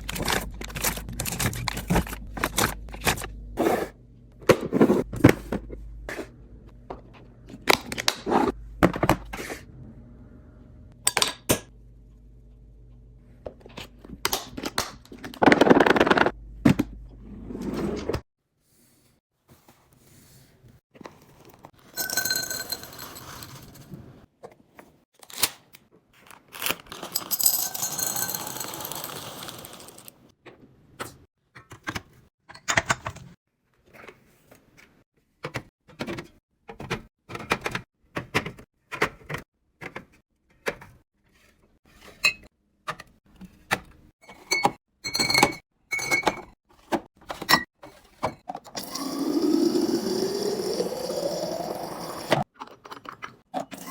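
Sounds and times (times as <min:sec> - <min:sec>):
containers clicking and knocking: 0:26.9 - 0:30.1.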